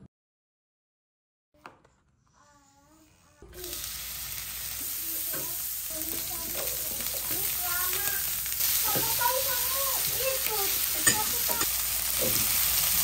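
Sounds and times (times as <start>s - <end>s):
food sizzling in hot oil: 3.5s - 13.0s.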